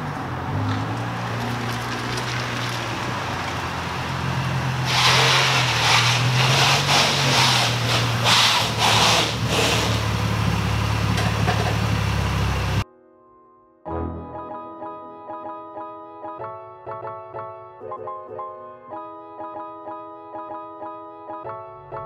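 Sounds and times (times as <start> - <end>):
car engine idling: 0.0 - 12.8.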